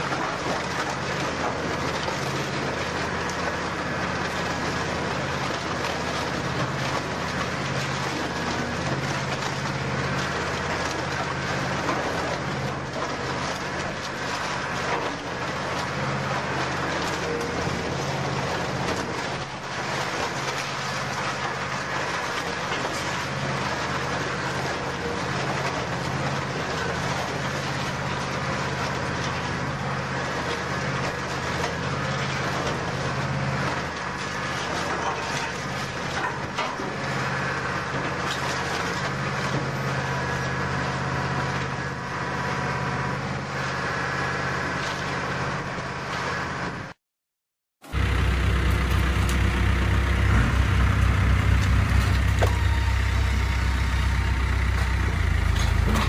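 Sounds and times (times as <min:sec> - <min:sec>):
low machinery hum: 0:00.0 - 0:47.0, 0:47.9 - 0:56.0
metal being crushed and shredded: 0:47.9 - 0:56.0.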